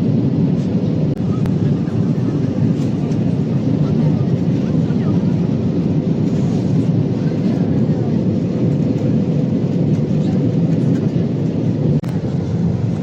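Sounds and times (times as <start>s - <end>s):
aircraft cabin engine rumble: 0.0s - 13.0s.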